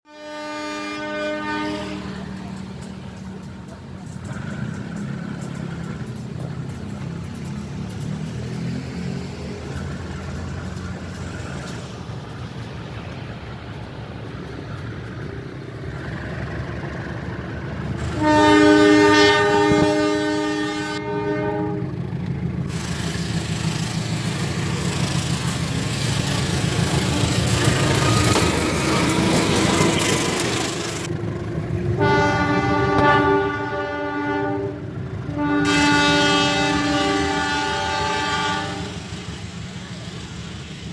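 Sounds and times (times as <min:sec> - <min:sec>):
locomotive horn chord: 0:00.1 - 0:02.6, 0:17.9 - 0:23.0, 0:31.9 - 0:39.2
locomotive engine rumbling: 0:00.1 - 0:40.9.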